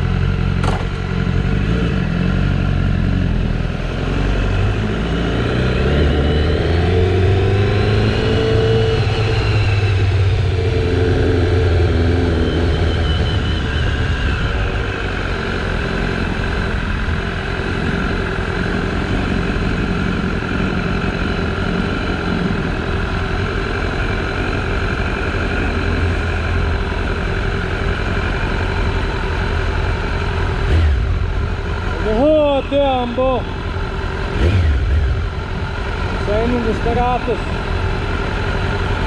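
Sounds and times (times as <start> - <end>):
motorcycle engine running: 0.0 - 39.0
sharp knock: 0.6 - 1.0
riding wind noise: 4.6 - 39.0.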